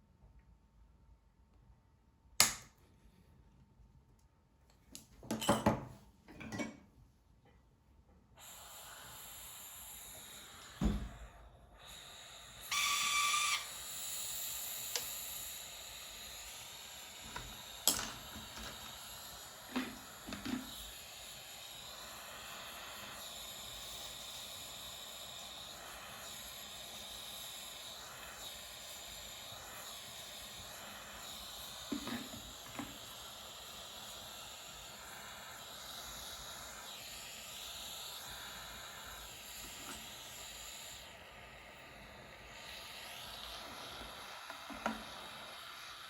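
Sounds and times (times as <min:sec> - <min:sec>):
soldering torch flame hissing: 0:08.3 - 0:46.0
brief whistle-like tone: 0:12.6 - 0:13.8.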